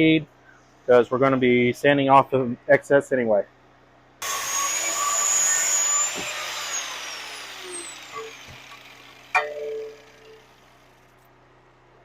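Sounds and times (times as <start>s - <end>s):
angle grinder cutting metal: 4.2s - 10.9s
sharp metallic clank: 8.1s - 10.5s.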